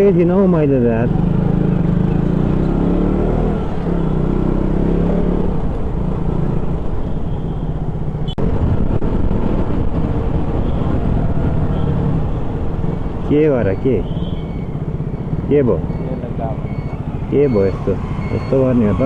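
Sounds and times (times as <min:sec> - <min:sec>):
motorcycle engine accelerating: 0:00.7 - 0:07.0.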